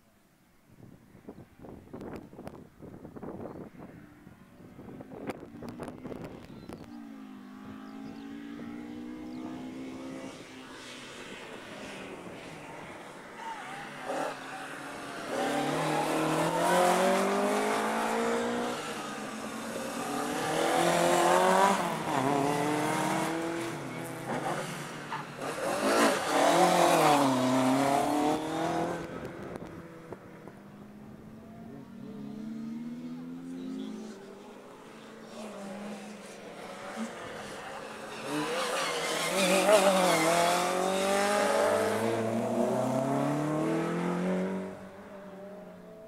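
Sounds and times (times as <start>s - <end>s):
rally car engine revving: 13.5s - 19.2s, 19.8s - 29.7s, 31.4s - 45.0s.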